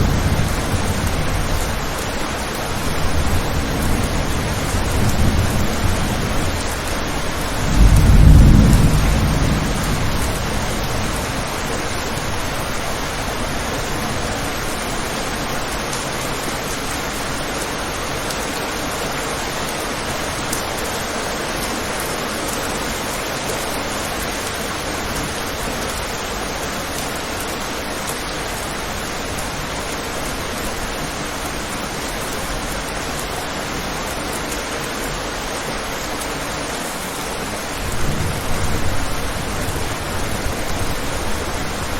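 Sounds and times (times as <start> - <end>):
thunder rumble: 0.0 - 13.6, 37.8 - 41.9
rain pattering on a window: 0.0 - 41.9.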